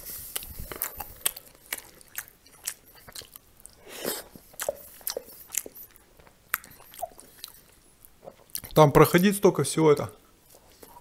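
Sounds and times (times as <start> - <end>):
man chewing soft food: 0.0 - 8.8, 10.2 - 11.0
wet mouth clicks and lip smacks: 0.3 - 8.8.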